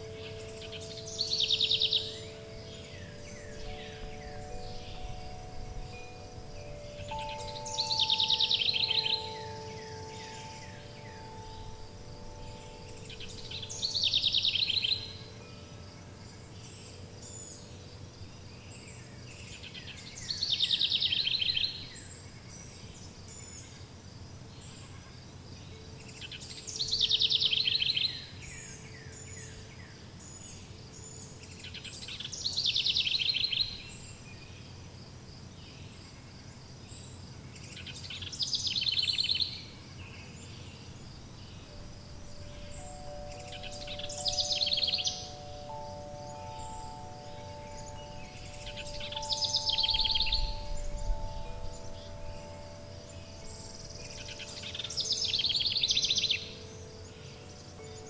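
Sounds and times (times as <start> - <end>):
wind chimes ringing: 0.0 - 22.2, 38.7 - 58.0
songbird singing: 0.0 - 58.0.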